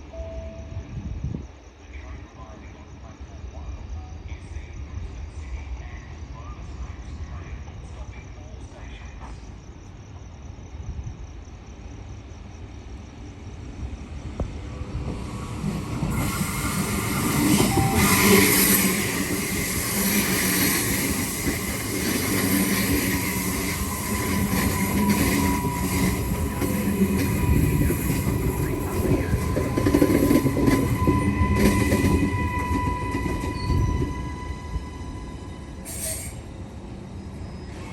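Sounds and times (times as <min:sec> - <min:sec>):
electric train running by: 0:12.0 - 0:37.9
train motor whine: 0:15.5 - 0:36.5.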